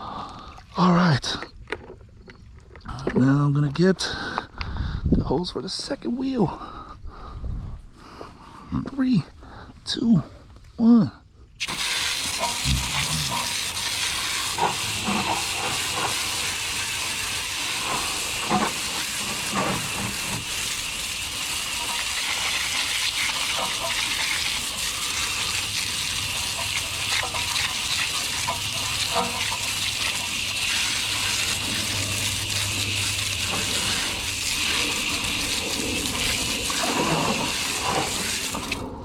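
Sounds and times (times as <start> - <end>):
hose spraying water: 11.6 - 39.0.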